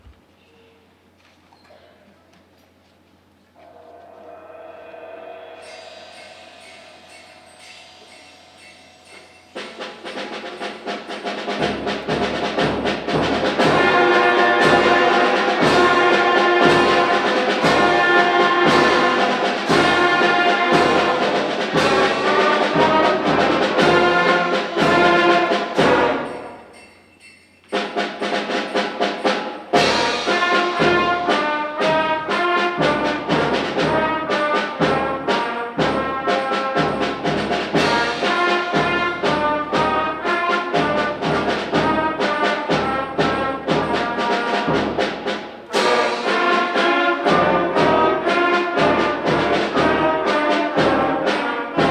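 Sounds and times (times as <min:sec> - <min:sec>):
concert band playing: 0:03.6 - 0:26.8, 0:27.8 - 0:51.9
steady drum beat: 0:05.6 - 0:51.9.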